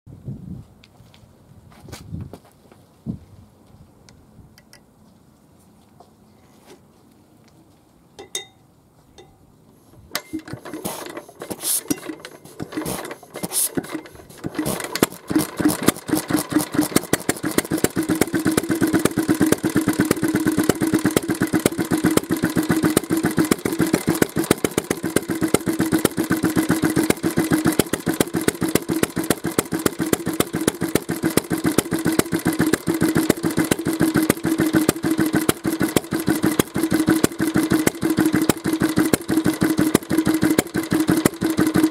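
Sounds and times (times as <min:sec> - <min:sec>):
stationary engine starting and running: 0:10.1 - 0:41.9.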